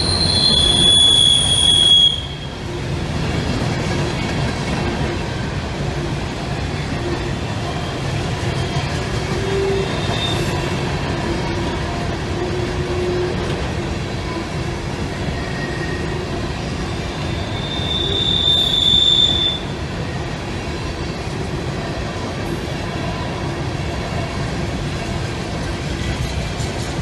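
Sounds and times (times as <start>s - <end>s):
wheels squealing: 0.0s - 2.6s, 7.8s - 10.7s, 15.2s - 19.8s
train wheels rumbling and clattering: 0.0s - 27.0s.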